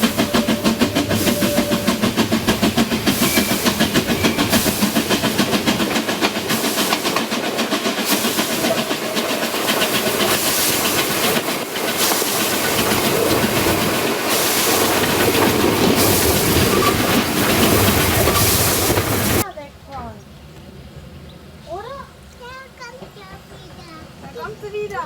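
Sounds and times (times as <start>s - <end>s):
steam hiss: 0.0s - 19.4s
rail clatter: 0.0s - 19.5s, 22.4s - 25.0s
steam locomotive chuffing: 0.0s - 19.6s, 20.7s - 25.0s.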